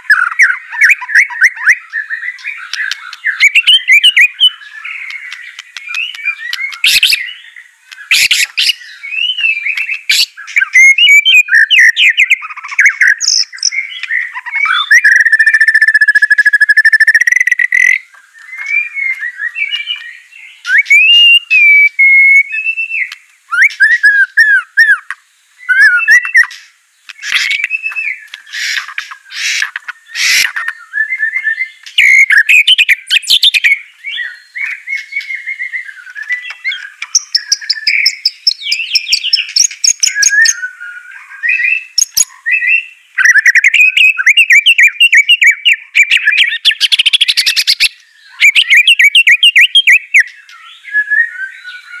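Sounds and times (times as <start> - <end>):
bird whistled song: 0.0 - 52.0
bird chattering rattles: 2.5 - 7.3, 26.3 - 30.8, 36.5 - 40.5.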